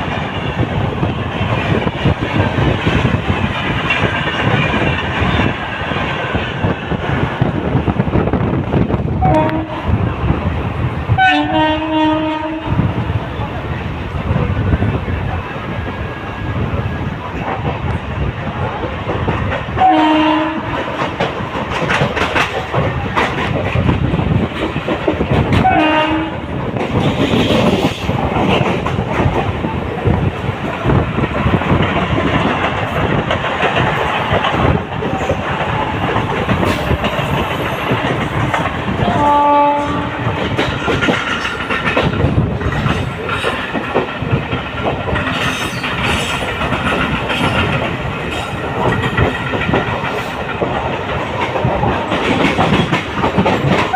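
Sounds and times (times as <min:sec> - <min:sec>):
train wheels clattering: 0:00.0 - 0:53.9
train horn blasts: 0:09.2 - 0:09.9, 0:11.2 - 0:12.8, 0:19.8 - 0:20.8, 0:25.6 - 0:26.5, 0:39.0 - 0:40.3.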